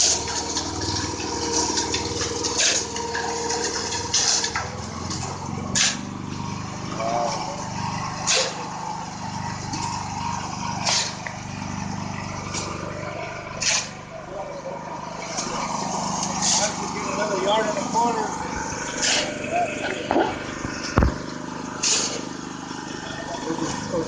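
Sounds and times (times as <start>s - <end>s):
truck diesel engine running: 0.0s - 24.0s
sharp scraping or hissing: 5.7s - 6.0s, 8.2s - 8.6s, 10.8s - 11.2s, 13.6s - 14.0s, 16.4s - 16.8s, 18.9s - 19.4s, 21.8s - 22.3s.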